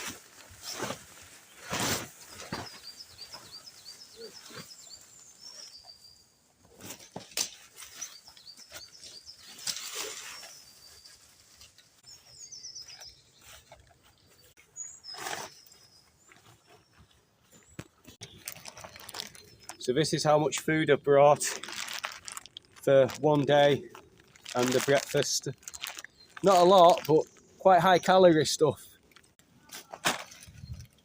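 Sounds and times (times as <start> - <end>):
small bird chirping: 2.2 - 6.4, 7.8 - 19.8, 23.9 - 28.2
rustling handling noises: 6.6 - 27.4.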